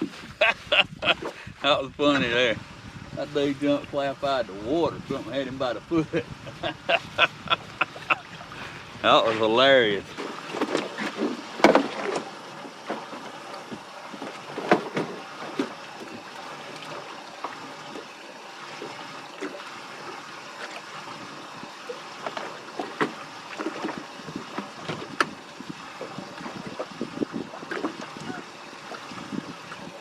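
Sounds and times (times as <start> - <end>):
water lapping against boat hull: 0.0 - 30.0.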